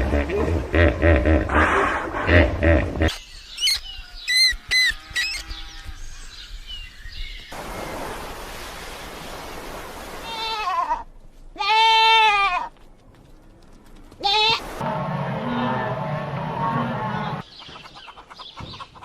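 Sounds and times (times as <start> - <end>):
goat bleating: 10.2 - 12.7, 14.2 - 14.6.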